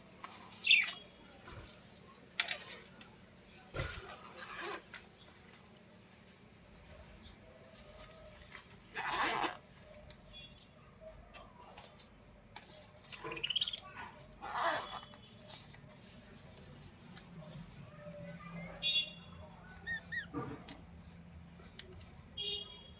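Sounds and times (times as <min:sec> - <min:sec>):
bird chirping: 0:00.6 - 0:01.0, 0:13.3 - 0:13.9.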